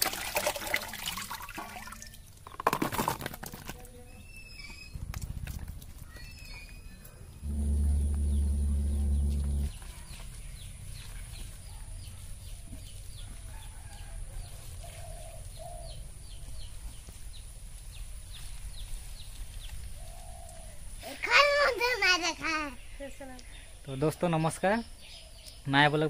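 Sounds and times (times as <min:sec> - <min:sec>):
birds chirping: 0:03.9 - 0:13.9
loud low hum: 0:07.1 - 0:10.1.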